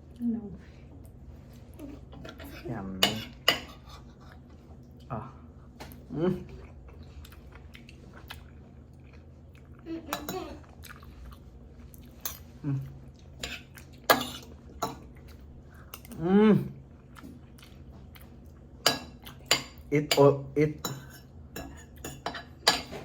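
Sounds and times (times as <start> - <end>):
chewing: 5.8 - 16.2, 16.8 - 19.5
cutlery clinking on a plate: 18.8 - 23.0.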